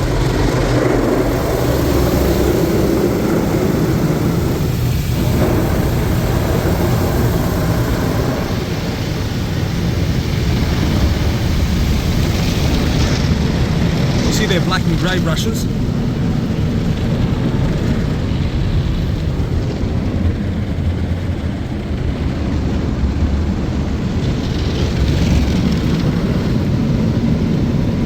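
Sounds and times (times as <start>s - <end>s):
car wash brushes scrubbing: 0.0s - 15.2s
water spray: 0.0s - 15.9s.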